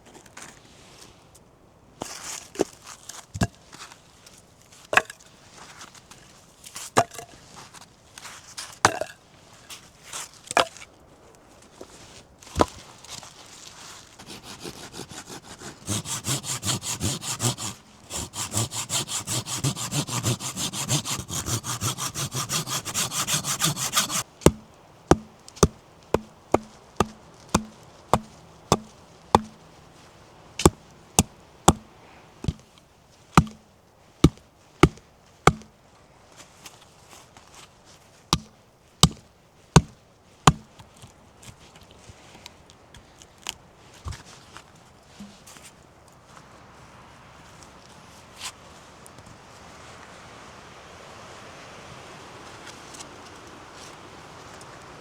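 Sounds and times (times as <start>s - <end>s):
hand saw cutting wood: 14.2s - 29.6s, 30.6s - 32.6s, 33.4s - 33.6s, 34.2s - 35.7s, 38.4s - 39.2s
sharp chops or taps: 14.3s - 29.6s, 30.6s - 32.6s, 33.4s - 33.6s, 34.2s - 35.7s
sharp wooden knocks: 14.4s - 29.6s, 30.6s - 32.6s, 33.4s - 33.6s, 34.2s - 35.7s.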